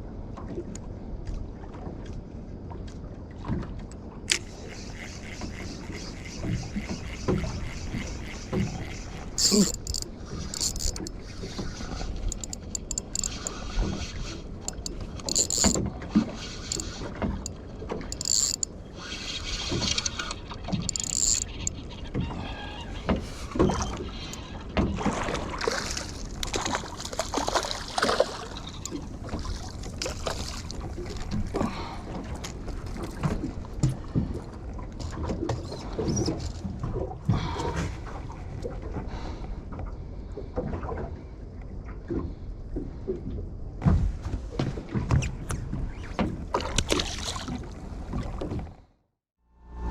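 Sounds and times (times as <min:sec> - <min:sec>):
water sloshing against hull: 0:00.0 - 0:49.0
knocks and splashes: 0:24.6 - 0:38.2, 0:42.0 - 0:48.8.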